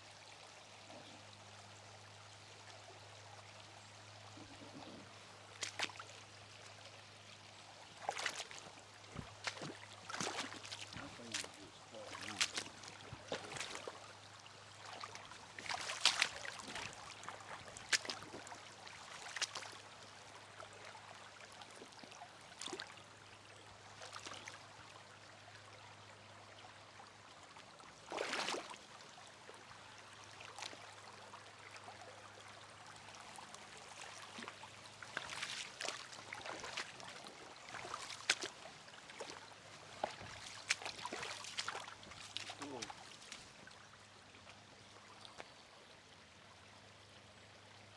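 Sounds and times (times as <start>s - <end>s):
creek water trickling over rocks: 0.0s - 47.9s
short sharp splashes: 5.6s - 6.1s, 8.0s - 8.6s, 9.2s - 13.9s, 14.8s - 17.1s, 17.7s - 18.5s, 19.1s - 19.8s, 28.1s - 28.8s, 33.9s - 43.6s.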